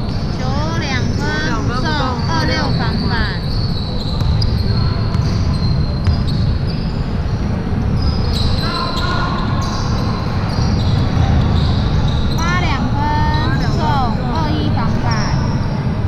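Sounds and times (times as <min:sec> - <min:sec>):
shoe squeaks: 0:00.0 - 0:16.0
basketball bouncing on floor: 0:04.2 - 0:04.5, 0:05.1 - 0:06.5.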